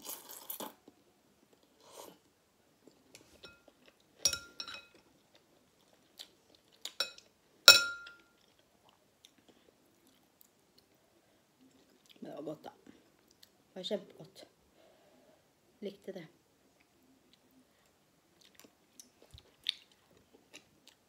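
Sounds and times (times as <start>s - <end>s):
soft chewing: 0.0s - 7.4s, 8.2s - 13.7s, 16.6s - 21.0s
utensil clinking against bowl: 3.4s - 3.7s, 4.3s - 5.0s, 7.0s - 8.2s.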